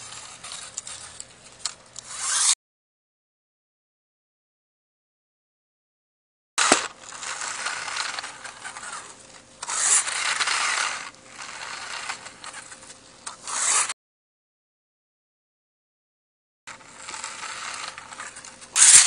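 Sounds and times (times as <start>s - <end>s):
toy tractor gears whirring and rattling: 0.0s - 2.6s, 6.6s - 14.0s, 16.7s - 19.0s.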